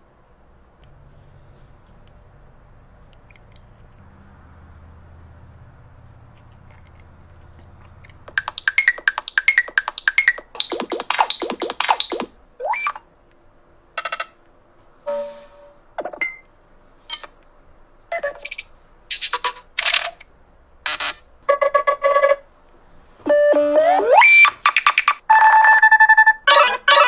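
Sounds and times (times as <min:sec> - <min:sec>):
smartphone electronic beeps: 0:08.3 - 0:13.0, 0:23.3 - 0:27.0.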